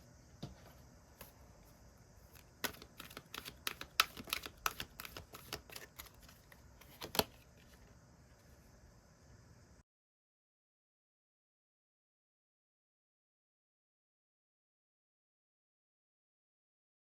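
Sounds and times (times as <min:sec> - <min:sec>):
cards clicking and tapping: 0:02.3 - 0:07.8.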